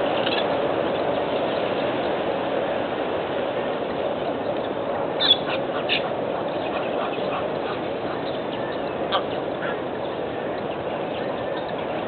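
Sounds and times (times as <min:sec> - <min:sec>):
steady background rush: 0:00.0 - 0:12.0
birds calling: 0:04.3 - 0:12.0.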